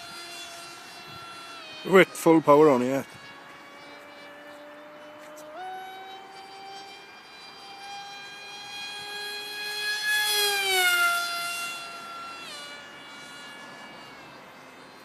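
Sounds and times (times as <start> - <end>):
model jet motor whining: 0.0 - 15.0.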